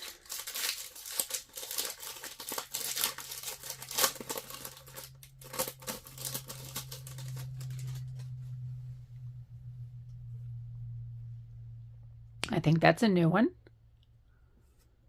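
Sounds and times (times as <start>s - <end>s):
wrapper crinkling and tearing: 0.0s - 8.4s
low steady hum: 0.0s - 15.0s.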